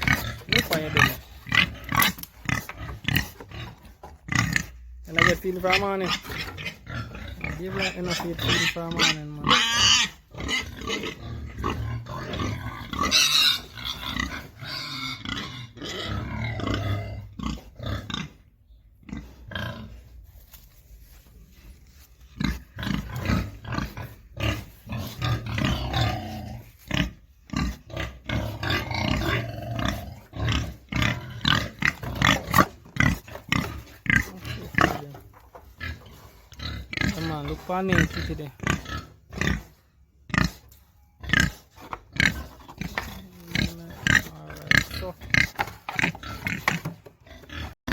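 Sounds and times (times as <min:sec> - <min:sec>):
pigs grunting while feeding: 0:00.0 - 0:20.2, 0:22.3 - 0:47.9.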